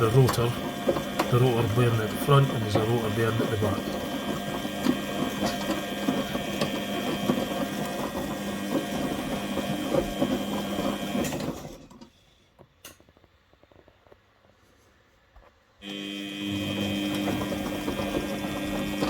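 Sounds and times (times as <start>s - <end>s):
washing machine motor hum: 0.0s - 12.1s, 15.8s - 19.0s.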